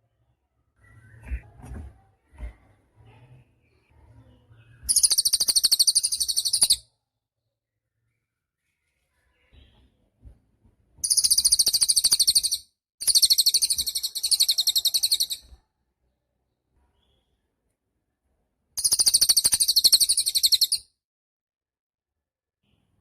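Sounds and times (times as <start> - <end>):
songbird rattling trills: 4.9 - 6.8, 11.0 - 15.4, 18.8 - 20.8.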